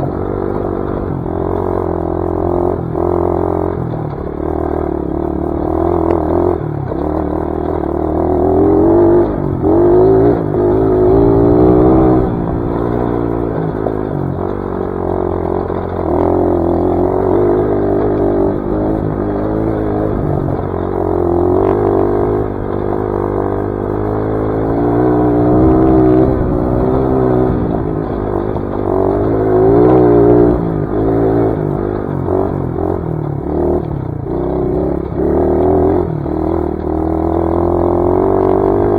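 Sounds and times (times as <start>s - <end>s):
clatter: 0.0s - 38.9s
dirt bike engine revving: 0.0s - 38.9s.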